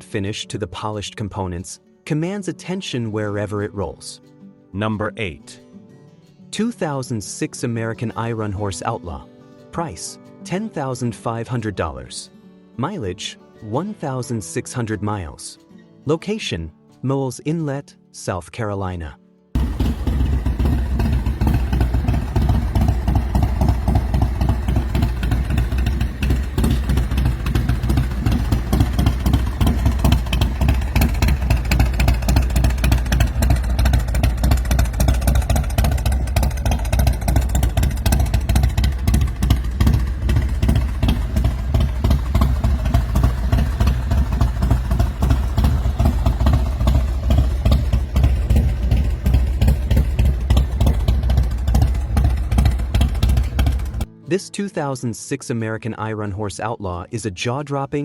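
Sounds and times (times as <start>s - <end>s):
motorcycle engine running: 19.6s - 54.1s.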